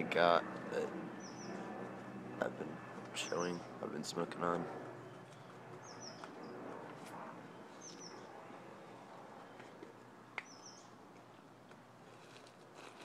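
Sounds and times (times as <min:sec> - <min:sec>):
bird high chirp: 0:05.8 - 0:06.6, 0:07.7 - 0:08.3, 0:10.4 - 0:10.9.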